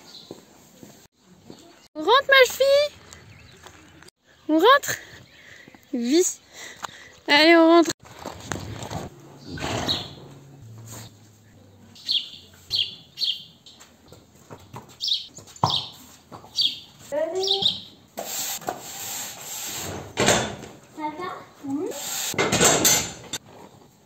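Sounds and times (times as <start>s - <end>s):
small birds chirping: 1.4s - 7.6s, 9.3s - 18.0s
push broom sweeping concrete: 18.2s - 20.1s, 21.9s - 22.4s.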